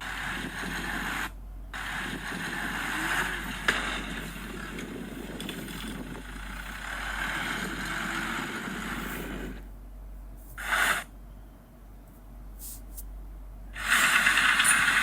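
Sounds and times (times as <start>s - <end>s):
bulldozer engine and tracks rumbling: 0.0s - 12.5s.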